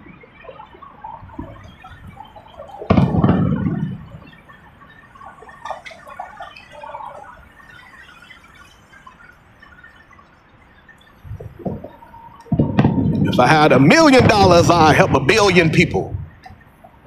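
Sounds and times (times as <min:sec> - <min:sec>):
firework bang with rumbling tail: 0:14.1 - 0:15.3.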